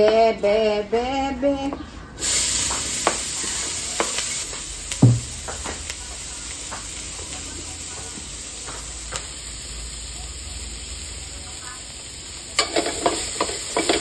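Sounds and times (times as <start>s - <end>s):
onion sizzling in hot oil: 2.2s - 14.0s
spatula knock on pan: 5.0s - 5.8s
spatula scraping pan: 12.6s - 14.0s.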